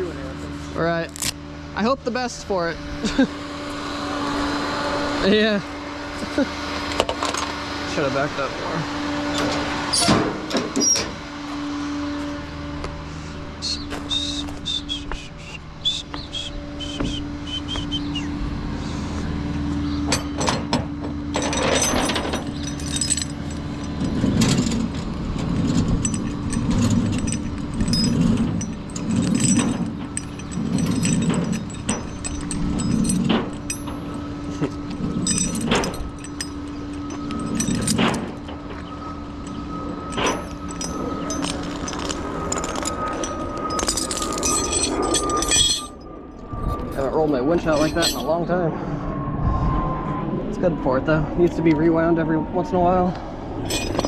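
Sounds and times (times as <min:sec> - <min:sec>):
metal clinks and clanks: 0:20.1 - 0:48.5, 0:53.6 - 0:54.0.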